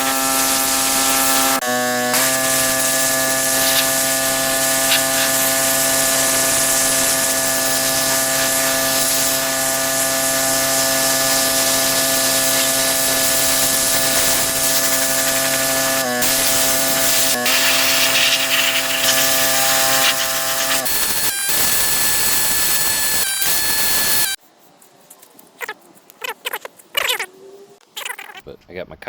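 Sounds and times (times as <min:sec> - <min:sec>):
water spray hissing: 0:00.0 - 0:22.7
pressure washer motor humming: 0:00.0 - 0:24.4.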